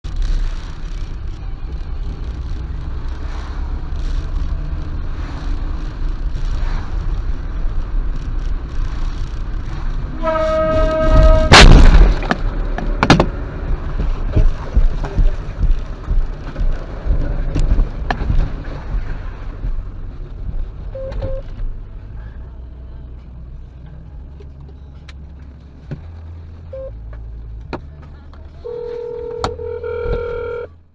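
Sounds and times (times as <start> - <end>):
road and engine rumble: 0.0 - 30.9
car horn: 10.1 - 11.9, 28.6 - 30.8
loud crash impact: 11.2 - 12.3
sharp knocks and clatters: 11.4 - 19.9
short beeps: 20.9 - 21.5, 26.8 - 27.0, 28.7 - 30.8.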